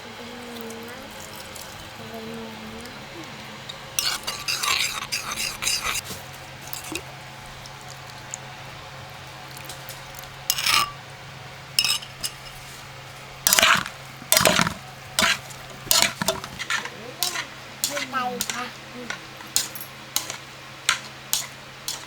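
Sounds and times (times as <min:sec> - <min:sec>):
utensil scraping a pan: 0:03.7 - 0:07.0, 0:10.5 - 0:11.0, 0:11.8 - 0:22.0.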